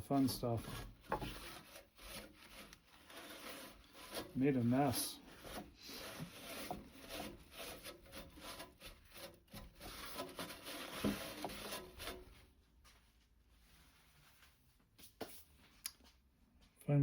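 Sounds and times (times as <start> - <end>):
objects rubbing and scraping on workbench: 0.0 - 12.4.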